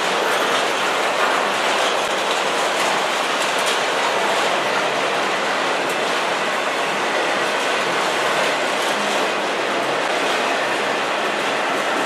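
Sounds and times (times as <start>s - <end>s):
train wheels rumbling and clattering: 0.0s - 12.0s.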